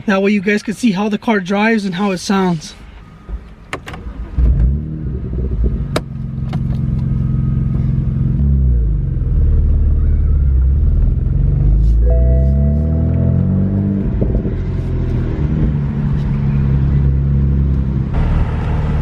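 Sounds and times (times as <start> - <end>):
car engine accelerating: 4.0 - 19.0.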